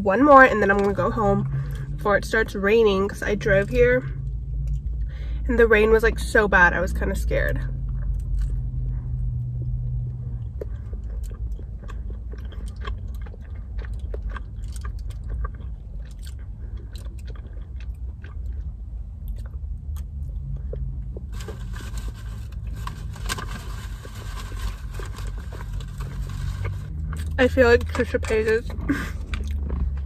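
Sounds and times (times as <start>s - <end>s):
car interior rumble: 0.0s - 30.0s
wet mouth clicks chewing: 9.6s - 21.3s.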